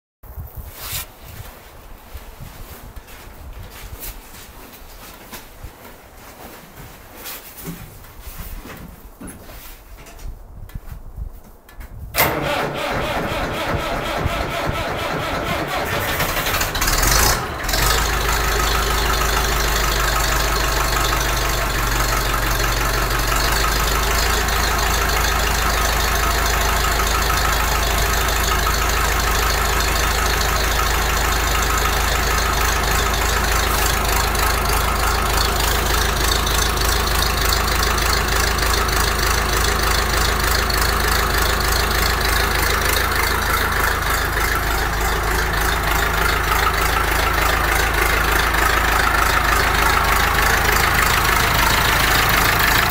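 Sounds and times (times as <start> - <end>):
tractor diesel engine idling: 12.2 - 52.9.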